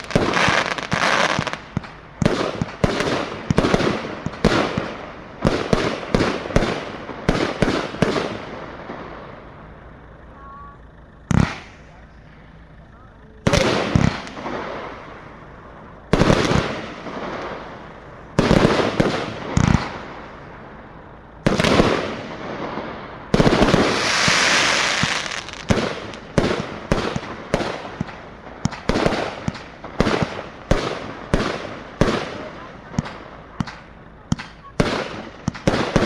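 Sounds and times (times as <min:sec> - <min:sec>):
firework hissing burst: 0:00.0 - 0:09.9, 0:21.4 - 0:36.0
firework bangs: 0:00.0 - 0:36.0.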